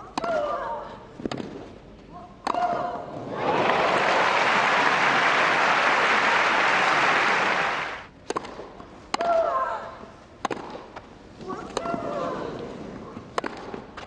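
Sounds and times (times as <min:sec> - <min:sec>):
crowd applauding: 0:03.3 - 0:08.1.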